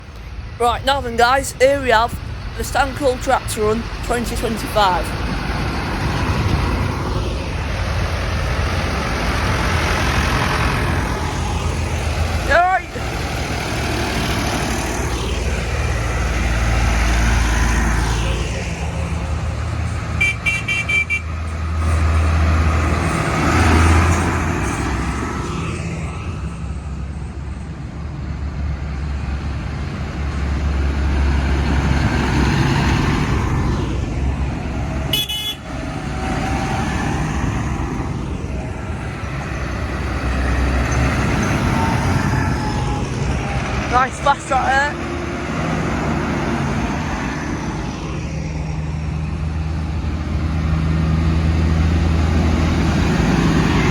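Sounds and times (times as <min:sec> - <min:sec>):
vehicle engines droning: 0:00.0 - 0:53.9
short horn toots: 0:35.1 - 0:35.6.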